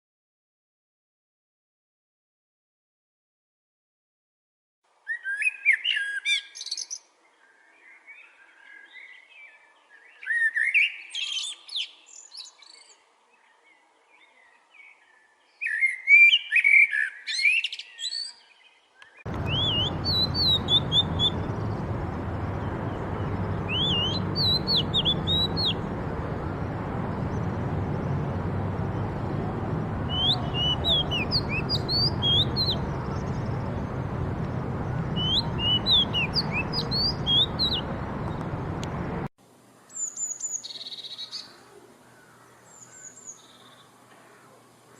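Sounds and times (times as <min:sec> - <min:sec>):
bird high upward chirps: 0:19.3 - 0:38.7
birds chirping and singing: 0:19.3 - 0:39.2
steady rushing background: 0:19.3 - 0:39.3.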